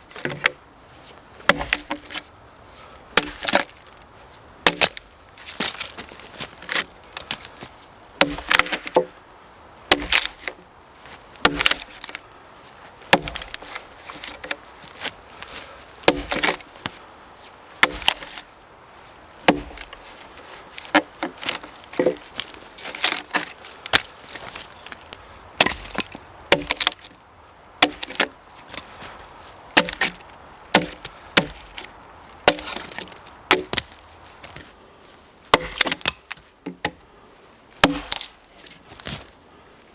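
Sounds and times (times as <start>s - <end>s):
axe striking wood: 1.5s - 2.3s, 3.2s - 3.9s, 4.6s - 5.9s, 8.2s - 9.2s, 9.9s - 10.6s, 11.4s - 12.2s, 13.1s - 14.7s, 16.0s - 16.9s, 17.8s - 18.5s, 19.5s - 20.0s, 20.8s - 24.1s, 25.6s - 27.2s, 27.8s - 28.4s, 29.8s - 34.6s, 35.5s - 37.0s, 37.8s - 39.2s.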